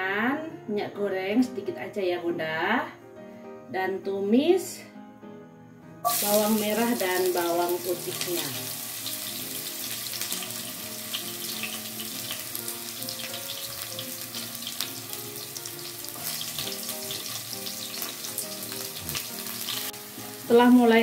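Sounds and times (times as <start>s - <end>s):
soft background music: 0.0s - 21.0s
shallots sizzling in oil: 6.0s - 21.0s.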